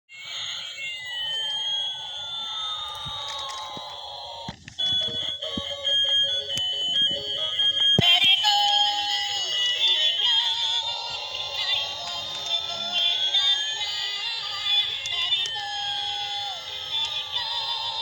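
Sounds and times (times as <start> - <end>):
bright beeping synth tune: 4.8 - 11.7.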